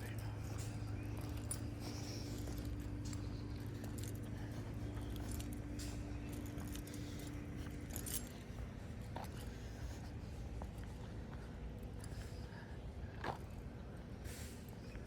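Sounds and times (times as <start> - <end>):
light metallic jingling: 0.0 - 8.6
steady low hum: 0.0 - 15.0.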